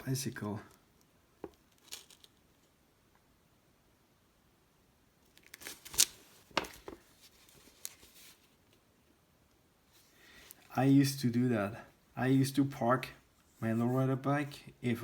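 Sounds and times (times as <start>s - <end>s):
magazine pages rustling: 5.4s - 8.7s.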